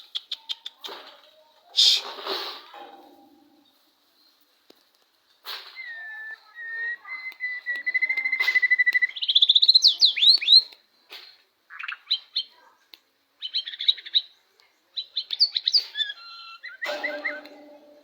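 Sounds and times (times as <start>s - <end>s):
songbird singing: 5.8s - 11.0s, 13.4s - 18.0s.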